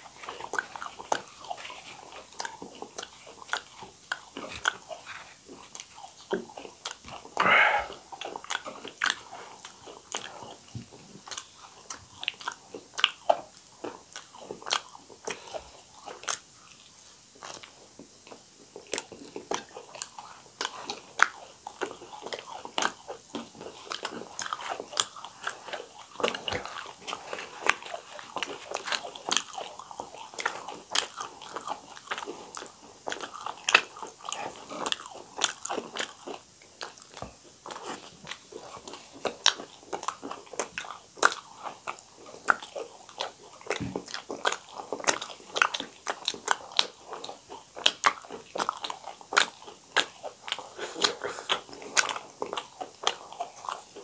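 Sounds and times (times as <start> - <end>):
people chewing crunchy food: 0.0 - 54.0
wet mouth clicks: 5.7 - 10.3, 39.2 - 54.0.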